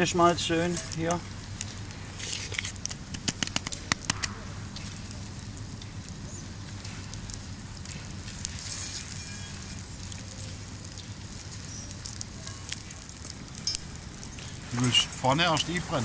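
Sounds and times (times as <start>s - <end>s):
campfire crackling and hissing: 0.0s - 16.0s
sharp pops and clicks: 0.8s - 9.1s.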